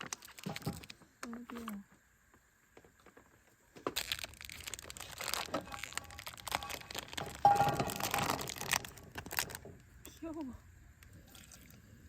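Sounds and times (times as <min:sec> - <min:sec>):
packaging crinkling and rustling: 0:00.0 - 0:01.8, 0:02.8 - 0:09.9.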